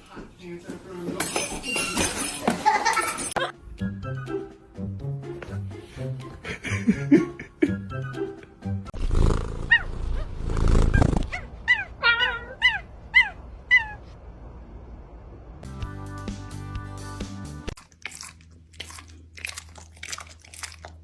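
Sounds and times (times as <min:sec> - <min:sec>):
background music: 0:02.8 - 0:08.9, 0:15.6 - 0:17.8
dog making harsh sounds: 0:09.6 - 0:14.1
dog yipping: 0:09.7 - 0:10.4, 0:11.0 - 0:14.1.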